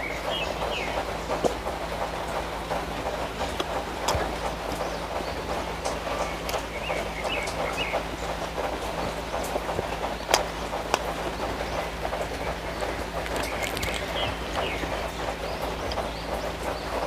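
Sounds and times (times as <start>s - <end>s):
wet mouth clicks: 13.2s - 14.2s
chewing: 13.2s - 14.8s.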